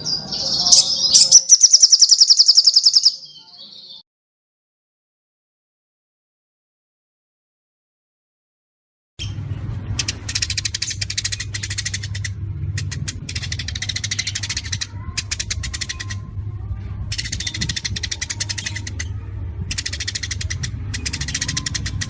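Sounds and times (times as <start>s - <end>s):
songbird rapid trilling song: 0.0s - 4.0s
steady low hum: 9.2s - 22.0s.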